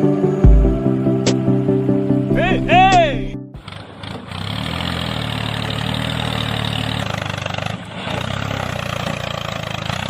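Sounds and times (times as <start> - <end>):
low-pitched engine running: 0.4 - 4.4.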